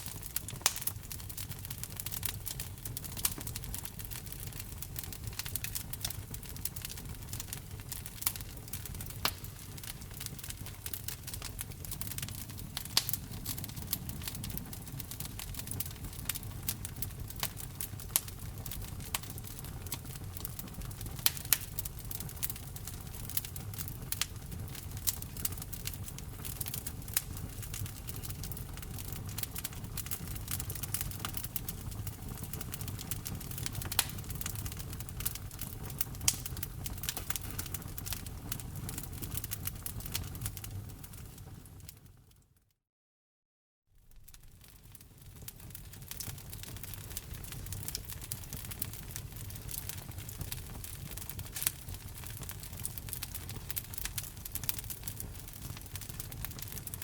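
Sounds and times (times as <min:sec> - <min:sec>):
low rumble of flames: 0:00.0 - 0:42.3, 0:44.0 - 0:57.0
wood fire crackling: 0:00.0 - 0:42.4, 0:44.0 - 0:57.0.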